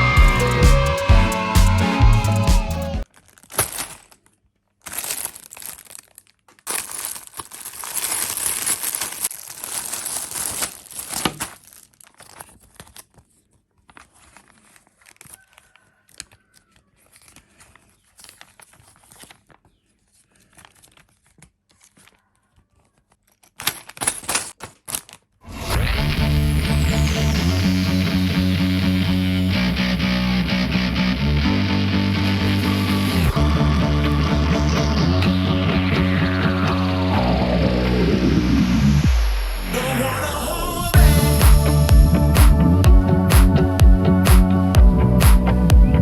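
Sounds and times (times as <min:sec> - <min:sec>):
packaging tearing and crinkling: 0:03.0 - 0:26.5.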